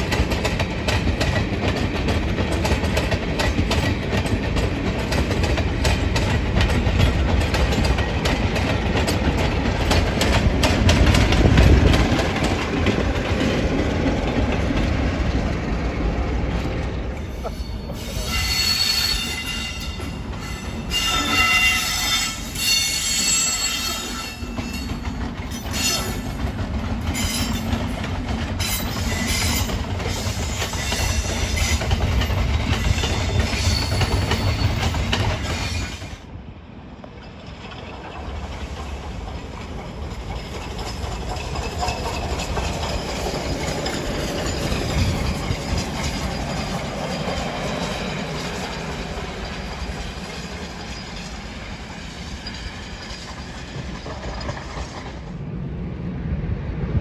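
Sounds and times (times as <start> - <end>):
freight train rumbling by: 0.0 - 57.0
train wheels screeching: 17.1 - 36.2, 37.2 - 55.4.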